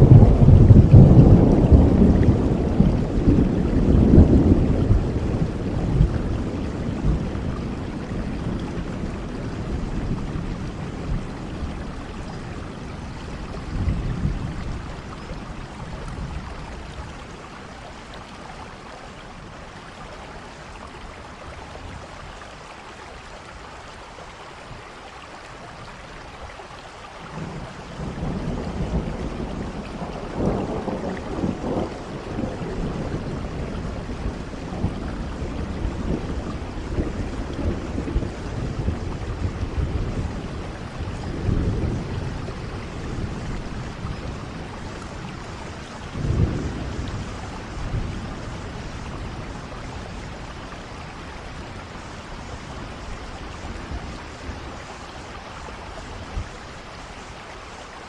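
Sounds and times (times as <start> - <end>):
rolling thunder: 0.0 - 17.3, 27.4 - 55.0
rain falling: 0.0 - 58.0.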